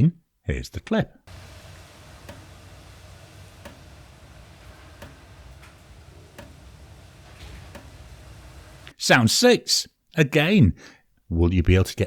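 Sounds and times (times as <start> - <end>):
water drops dripping from tap: 1.3 - 9.0.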